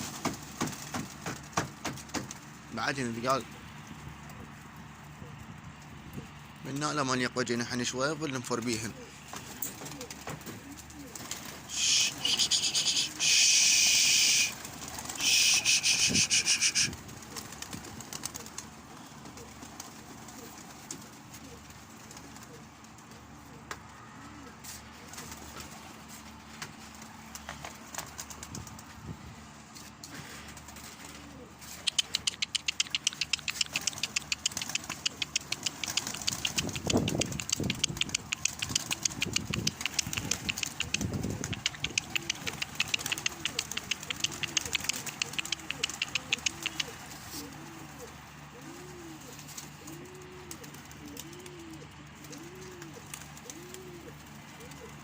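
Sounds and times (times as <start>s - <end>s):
pigeons cooing: 8.6s - 28.8s, 29.9s - 55.0s
high ticking chirp: 31.9s - 46.9s.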